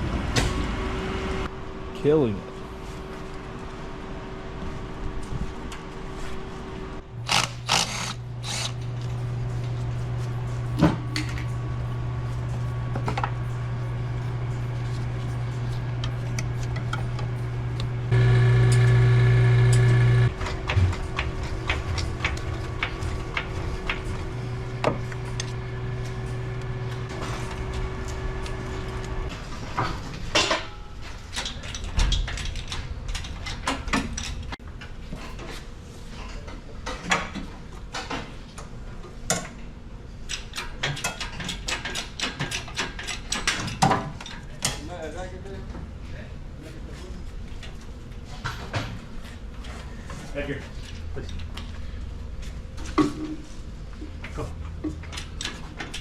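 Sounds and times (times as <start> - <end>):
low mechanical hum: 0.0 - 56.0
loud buzz: 16.6 - 29.3
hand tools clicking and knocking: 40.3 - 44.8.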